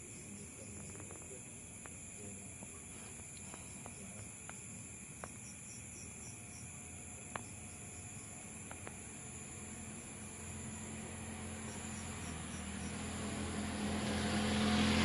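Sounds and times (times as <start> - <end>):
high-pitched insect chorus: 0.0 - 15.0
insect chirps: 0.0 - 15.0
faint sharp clicks: 8.6 - 9.0.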